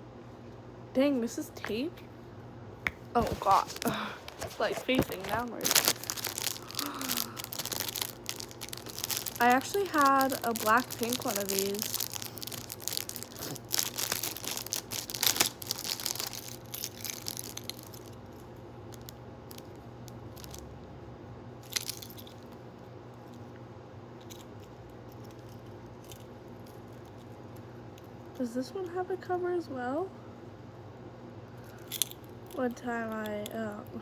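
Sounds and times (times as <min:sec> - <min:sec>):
plastic packaging crinkling: 0:03.2 - 0:20.7, 0:21.6 - 0:22.6.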